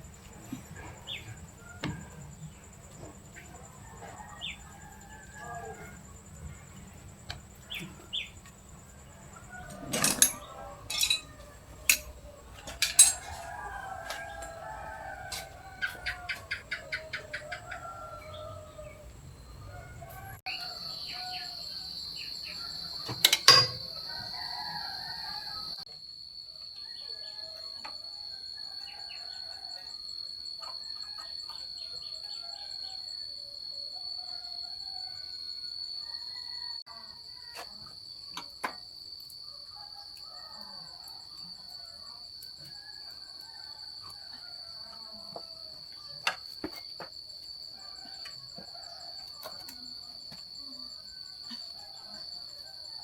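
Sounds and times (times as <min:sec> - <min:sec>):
insect drone: 0:00.0 - 0:53.0.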